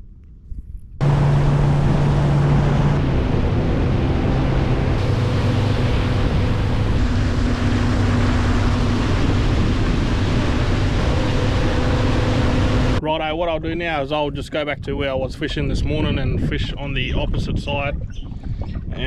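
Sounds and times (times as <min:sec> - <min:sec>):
wind on microphone: 0:00.0 - 0:19.0
outboard motor running: 0:01.0 - 0:13.0.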